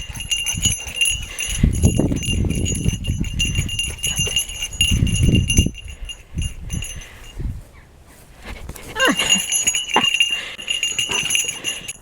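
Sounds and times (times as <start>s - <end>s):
collar bell jingling: 0.0s - 7.5s, 8.9s - 12.0s
dogs growling playfully: 8.6s - 11.9s.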